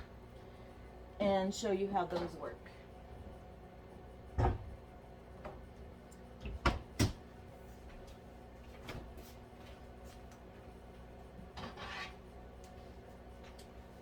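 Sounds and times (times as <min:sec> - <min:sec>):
refrigerator door knocks and clunks: 0:04.4 - 0:04.7, 0:06.5 - 0:07.2.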